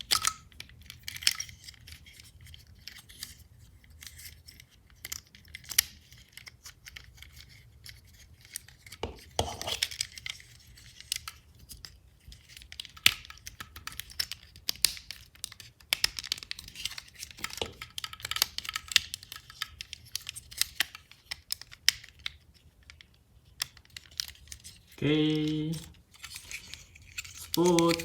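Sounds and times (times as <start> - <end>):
plastic toy clicks and snaps: 0.0 - 0.5, 12.6 - 24.6, 26.7 - 28.0.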